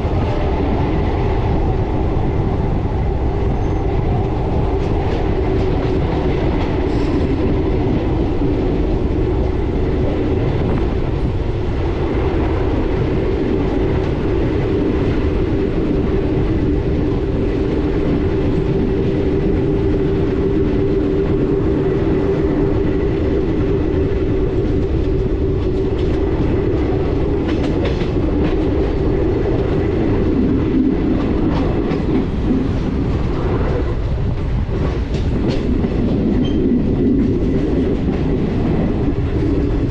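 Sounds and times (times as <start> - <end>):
train rumble and hum: 0.0 - 39.9
wheels clicking over rail joints: 23.3 - 39.9.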